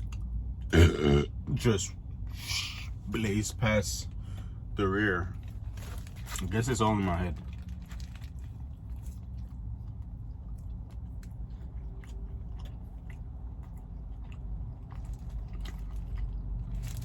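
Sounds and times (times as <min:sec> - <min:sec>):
person chewing and biting food: 0:07.5 - 0:17.0.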